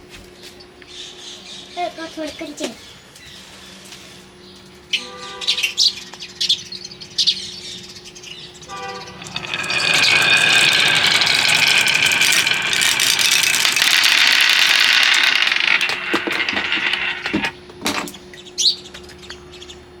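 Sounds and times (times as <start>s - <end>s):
marbles rattling down a track: 8.4s - 17.6s.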